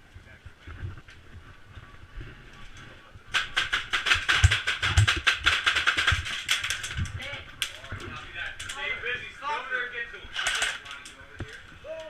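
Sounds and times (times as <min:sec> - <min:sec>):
airsoft guns firing: 0:03.3 - 0:07.1, 0:10.3 - 0:10.9.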